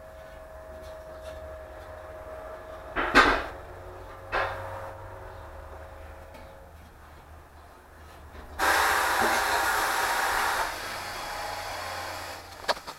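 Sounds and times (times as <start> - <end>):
low steady hum: 0.0 - 8.6
loud even hiss: 8.6 - 12.5.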